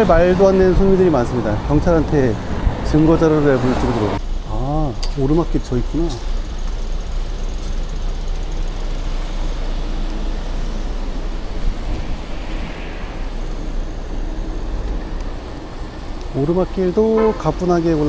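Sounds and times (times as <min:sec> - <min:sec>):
wind rush on microphone: 0:00.0 - 0:04.2, 0:10.8 - 0:16.3
road noise: 0:00.0 - 0:18.0.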